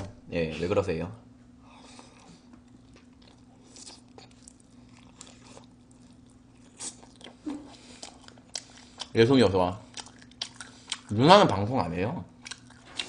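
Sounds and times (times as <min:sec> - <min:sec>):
biting and chewing: 0:01.9 - 0:09.2, 0:09.8 - 0:11.7, 0:12.3 - 0:13.0.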